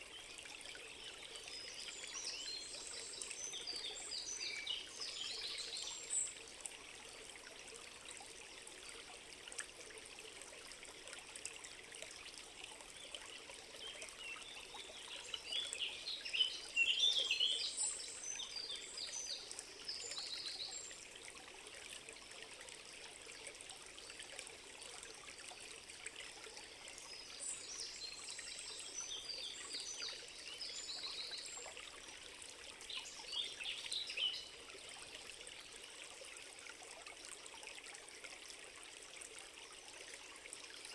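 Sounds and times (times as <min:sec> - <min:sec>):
water trickling: 0:00.0 - 0:40.9
songbirds chirping: 0:26.6 - 0:34.6.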